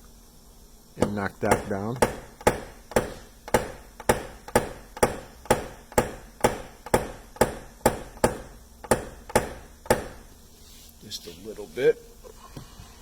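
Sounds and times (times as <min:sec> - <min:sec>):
hammer tapping metal tool: 0:01.0 - 0:10.3.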